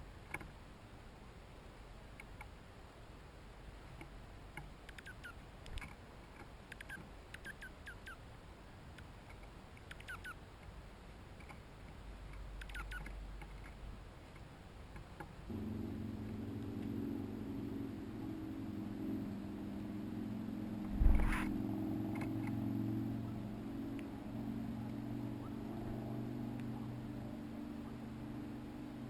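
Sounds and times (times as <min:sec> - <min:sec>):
songbird chip calls: 0:04.9 - 0:05.4, 0:06.8 - 0:08.2, 0:09.8 - 0:10.4, 0:12.6 - 0:13.2
low motor hum: 0:15.5 - 0:29.0.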